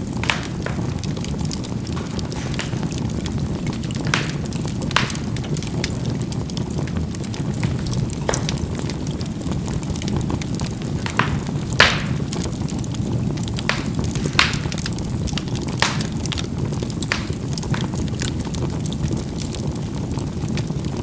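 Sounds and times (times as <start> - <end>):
charcoal popping and crackling: 0.0 - 21.0
low rumble of fire: 0.0 - 21.0.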